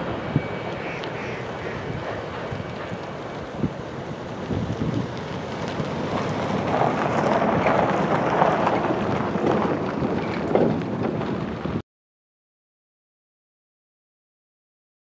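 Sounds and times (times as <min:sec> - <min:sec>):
train wheels clattering on rail: 0:00.0 - 0:11.8.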